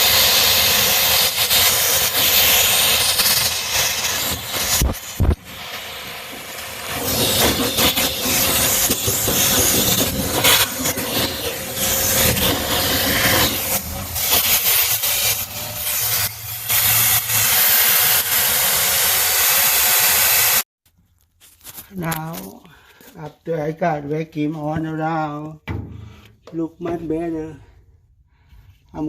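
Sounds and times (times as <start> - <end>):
vacuum cleaner running: 0.0 - 20.6.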